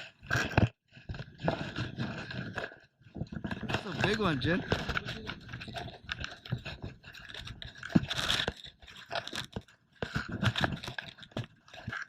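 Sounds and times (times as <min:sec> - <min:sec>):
wet sand crunching and scraping: 0:01.2 - 0:09.6.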